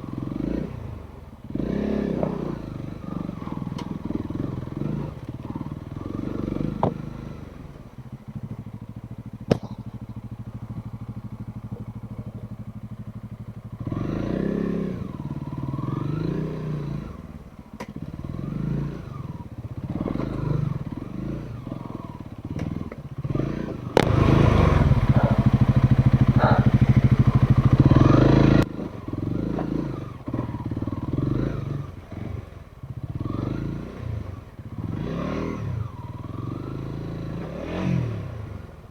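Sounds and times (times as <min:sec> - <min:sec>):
motorcycle engine throttle blips: 0:00.0 - 0:38.9
knocks and clatter from bike: 0:02.0 - 0:02.8, 0:03.5 - 0:05.6, 0:06.6 - 0:07.3, 0:08.4 - 0:13.8, 0:17.7 - 0:18.2, 0:22.4 - 0:28.7.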